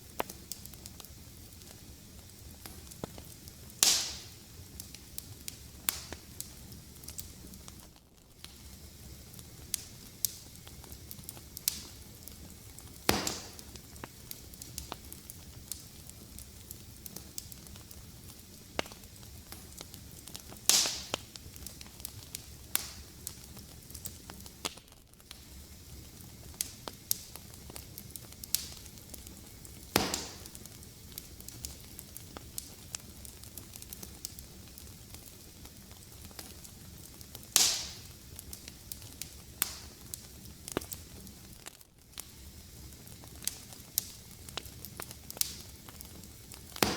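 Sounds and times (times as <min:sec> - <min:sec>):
loud fire pops: 0:00.0 - 0:46.9
wood fire crackling: 0:00.0 - 0:46.9.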